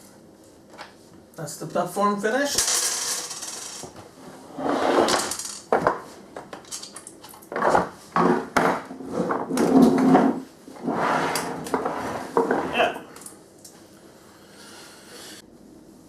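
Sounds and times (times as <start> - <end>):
knocks clatter and scraping: 2.6 - 12.8.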